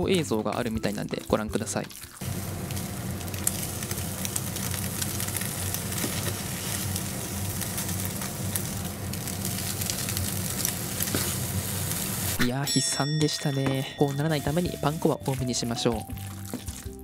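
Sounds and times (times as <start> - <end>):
patties sizzling in oil: 0.0 - 12.4, 14.0 - 17.0.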